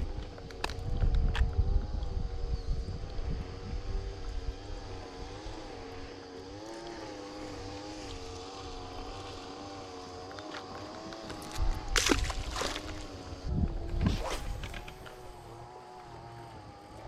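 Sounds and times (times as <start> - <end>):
motor running: 0.0 - 17.0.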